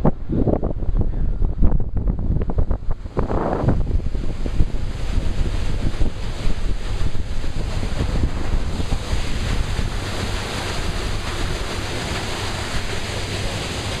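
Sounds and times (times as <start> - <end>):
rushing water: 0.0 - 14.0
wind buffeting microphone: 0.0 - 14.0.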